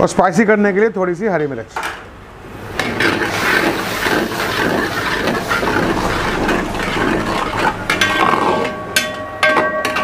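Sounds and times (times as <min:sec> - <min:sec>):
masala sizzling in metal pan: 0:02.5 - 0:10.0
steel spatula stirring: 0:02.7 - 0:10.0.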